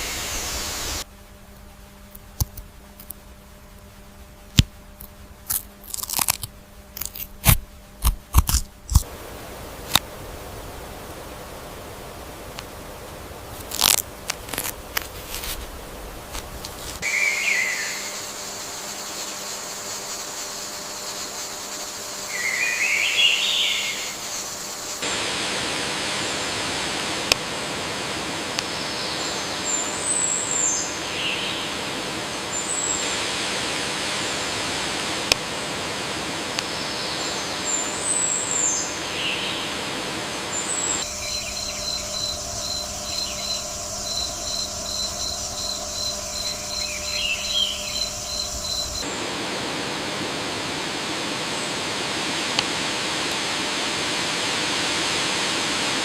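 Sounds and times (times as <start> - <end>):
birds chirping: 0.0 - 1.0, 10.5 - 25.0, 36.7 - 49.2
outdoor background hiss: 0.0 - 56.0.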